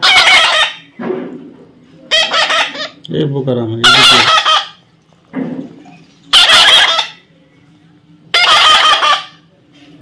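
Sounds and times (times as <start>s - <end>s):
parrot squawking: 0.0s - 1.0s, 2.0s - 3.0s, 3.8s - 4.8s, 6.0s - 7.3s, 8.3s - 9.5s.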